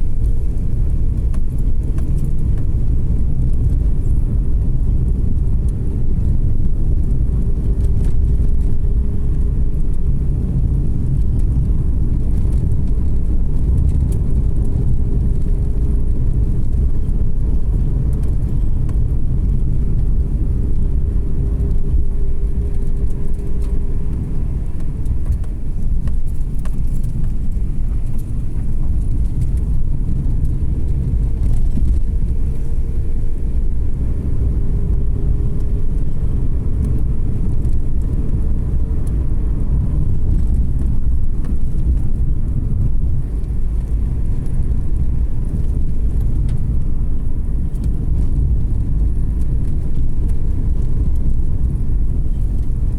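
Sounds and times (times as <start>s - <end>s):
car engine and road noise: 0.0s - 52.9s.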